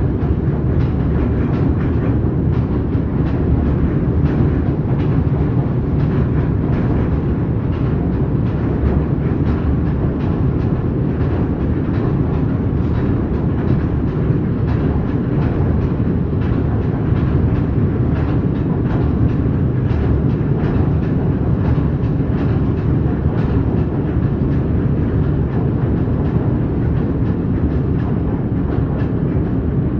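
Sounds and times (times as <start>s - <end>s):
train rumbling: 0.0s - 29.9s
train wheels clacking over rail joints: 0.0s - 29.9s.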